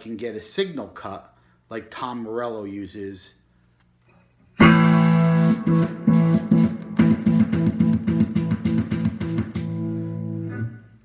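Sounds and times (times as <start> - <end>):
stuttering electric guitar chord: 4.6 - 10.7.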